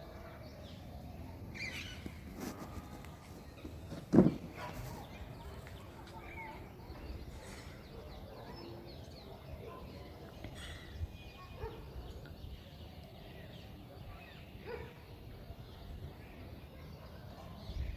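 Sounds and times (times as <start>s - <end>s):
birds chirping and calling: 0.0s - 12.2s.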